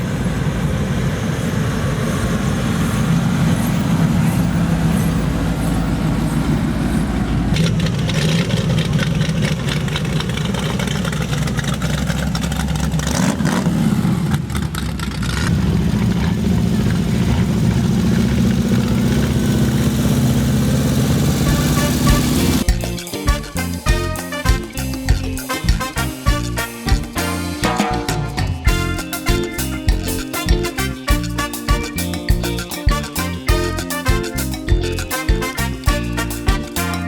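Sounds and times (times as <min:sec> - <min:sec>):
cars rolling slowly past: 0:00.0 - 0:22.6.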